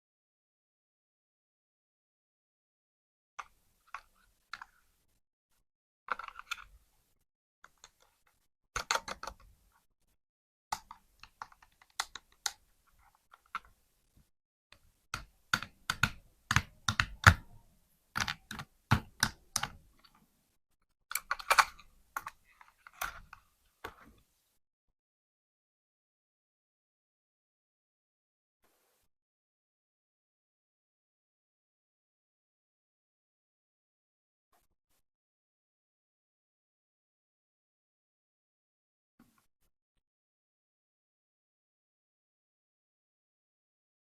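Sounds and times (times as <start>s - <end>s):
plastic clicks and taps: 15.2s - 17.6s, 18.2s - 19.8s.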